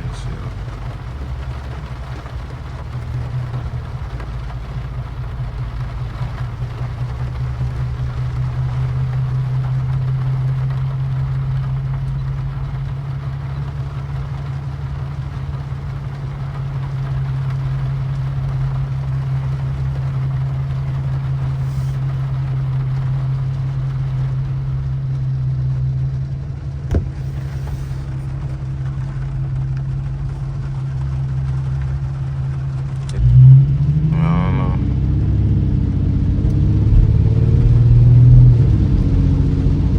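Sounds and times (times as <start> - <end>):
tyres hissing on wet pavement: 0.0 - 35.4
engine and road drone: 0.0 - 39.9
engine surge: 32.7 - 39.9.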